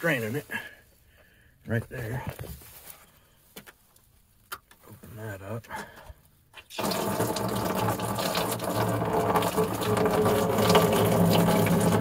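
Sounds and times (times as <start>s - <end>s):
liquid pouring into a bucket: 6.7s - 12.0s.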